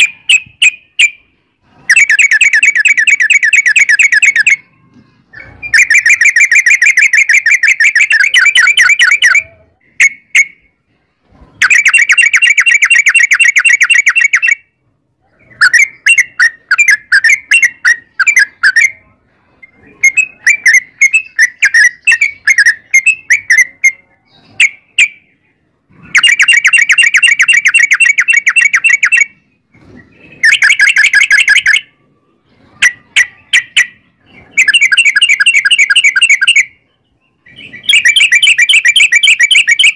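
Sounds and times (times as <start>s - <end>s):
bird singing rapid trills: 1.9s - 4.8s, 5.4s - 10.6s, 19.6s - 39.9s.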